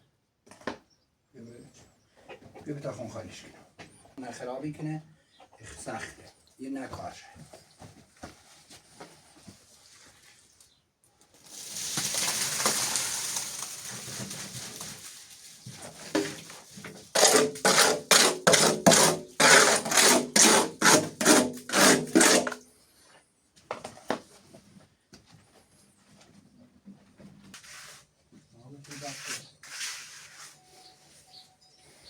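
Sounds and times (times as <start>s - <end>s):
mortar rushing slide: 11.6s - 14.9s
mortar scraping on floor: 11.6s - 22.6s, 27.6s - 28.1s, 28.9s - 30.6s.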